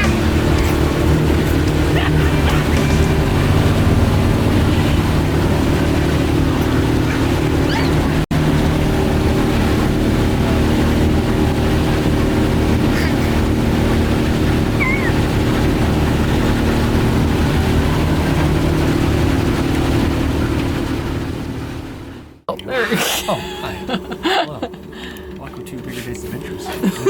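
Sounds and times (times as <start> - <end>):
motorboat engine droning: 0.0 - 27.0
water rushing: 0.0 - 27.0.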